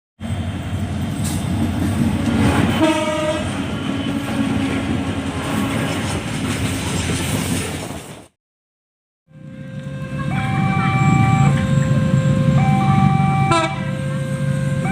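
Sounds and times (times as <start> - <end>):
train wheels rumbling on rails: 0.2 - 8.4
train horn blast: 2.2 - 4.6, 5.3 - 6.1, 9.3 - 14.9.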